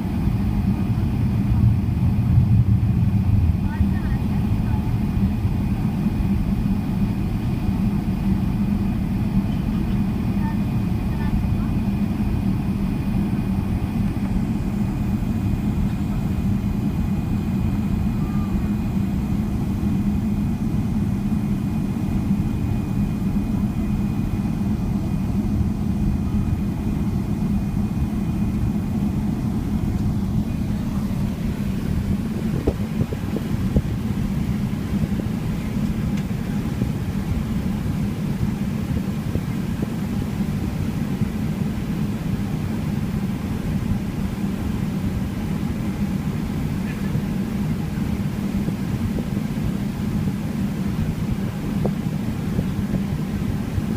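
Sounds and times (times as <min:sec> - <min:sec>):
airliner cabin engine drone: 0:00.0 - 0:53.9
faint high whine: 0:00.0 - 0:53.9.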